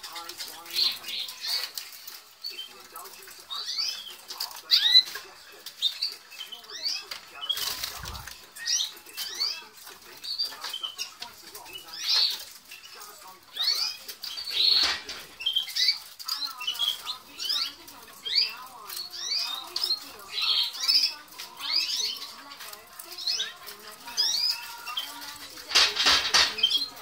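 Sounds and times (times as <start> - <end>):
birds scrabbling in cages: 0.0 - 27.0
canaries chirping: 0.0 - 27.0
wing flutters: 6.8 - 27.0.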